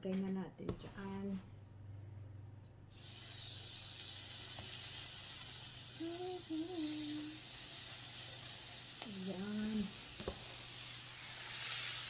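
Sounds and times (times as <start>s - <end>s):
food sizzling on grill pan: 3.0s - 12.0s.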